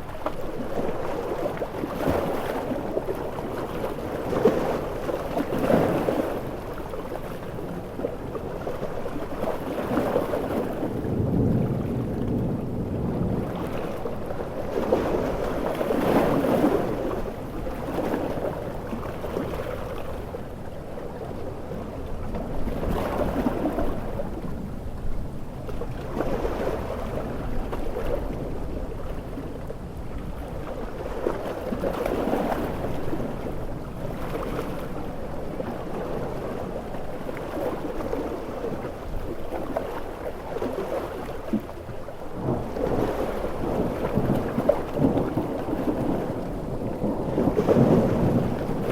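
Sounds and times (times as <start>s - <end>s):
ocean waves breaking: 0.0s - 48.9s
wind: 0.0s - 48.9s
heavy rain: 10.8s - 15.6s, 43.4s - 48.9s.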